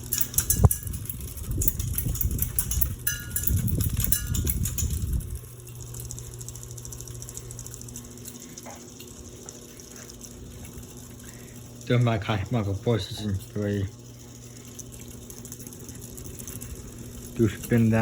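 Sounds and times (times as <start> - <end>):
rumbling and rattling: 0.0 - 6.5
ceiling fan motor hum: 0.0 - 18.0.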